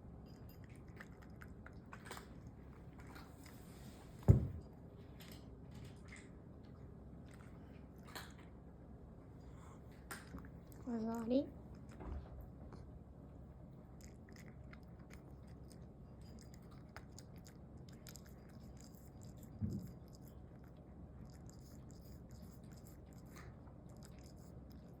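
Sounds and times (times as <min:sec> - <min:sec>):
cat chewing with crisp crunching: 0:00.0 - 0:25.0
low background hum: 0:00.0 - 0:25.0
short low thump: 0:04.3 - 0:04.6.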